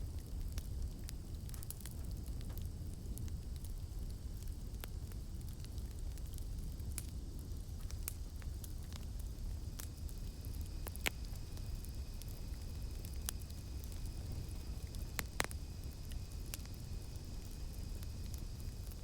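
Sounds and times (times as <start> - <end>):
campfire crackling and popping: 0.0 - 19.0
cicadas droning: 8.8 - 19.0.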